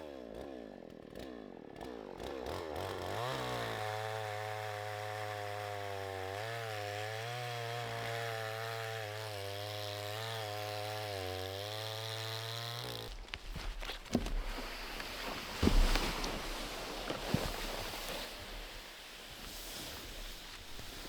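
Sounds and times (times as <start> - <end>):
chainsaw cutting wood: 0.0 - 21.0.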